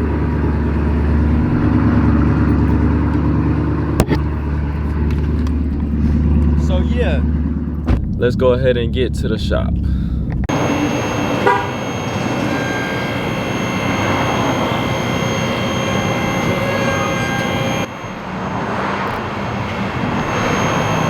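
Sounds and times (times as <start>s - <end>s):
road noise from moving car: 0.0s - 8.2s, 9.7s - 21.0s
car horn toot: 10.5s - 18.2s, 18.9s - 21.0s.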